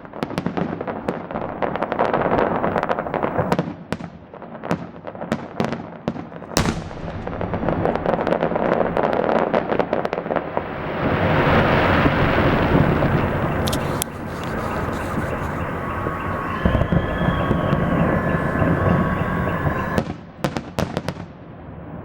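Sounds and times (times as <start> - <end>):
fireworks bang: 6.5 - 10.2, 10.9 - 21.2
fireworks crackling pops: 6.5 - 18.7.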